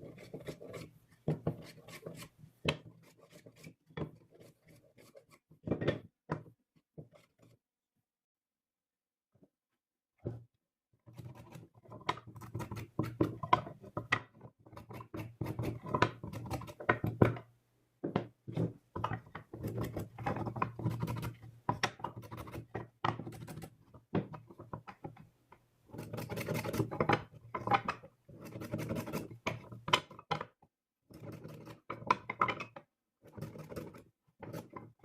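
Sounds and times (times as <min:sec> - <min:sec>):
scratching and rubbing on wood: 0:00.0 - 0:05.5, 0:25.9 - 0:29.8.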